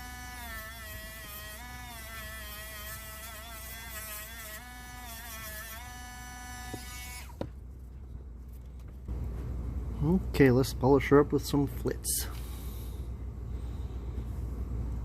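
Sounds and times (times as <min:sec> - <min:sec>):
rotary tool buzzing whine: 0:00.0 - 0:07.6.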